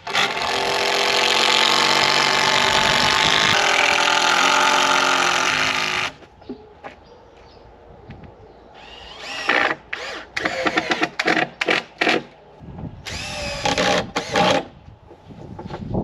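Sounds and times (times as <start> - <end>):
power drill motor whine: 8.8 - 10.8, 13.1 - 14.6.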